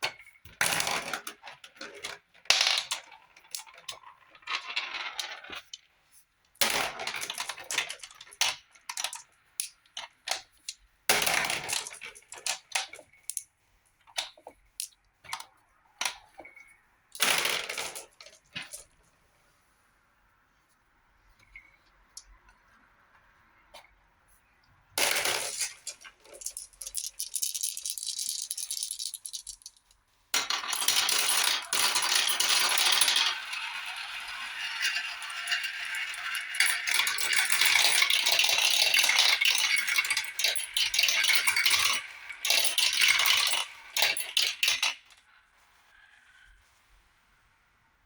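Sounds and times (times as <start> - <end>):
marbles rattling down a track: 25.0 - 45.2.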